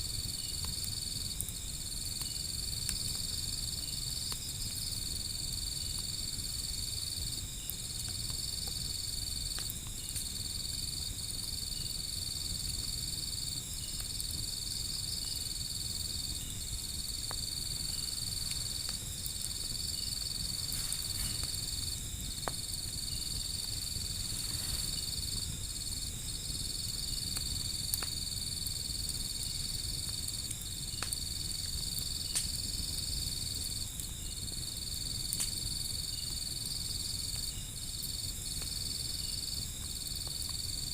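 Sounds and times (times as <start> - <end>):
fire crackling and popping: 0.0 - 40.9
insects trilling: 0.0 - 40.9.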